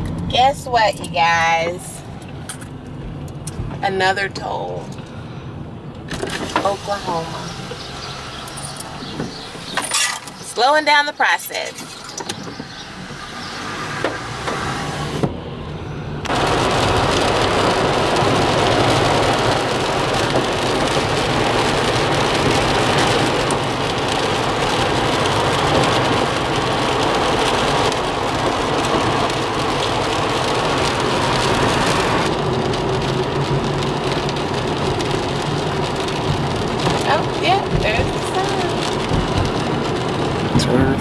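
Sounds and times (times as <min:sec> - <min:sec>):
low engine and road hum: 0:00.0 - 0:41.0
rain and wet tyres on road: 0:00.0 - 0:41.0.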